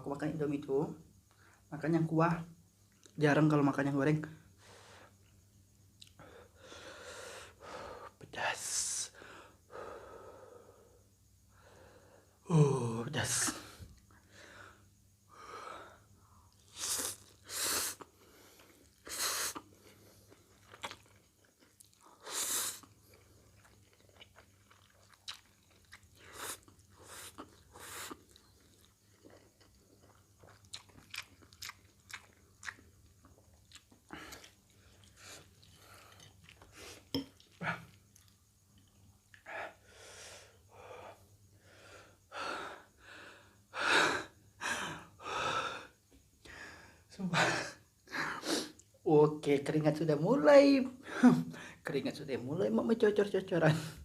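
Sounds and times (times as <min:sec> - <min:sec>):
person chewing noodles: 0:16.5 - 0:39.5.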